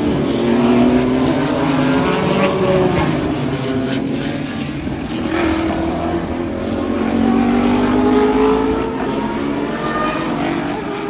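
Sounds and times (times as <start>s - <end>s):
race cars passing: 0.0s - 11.0s.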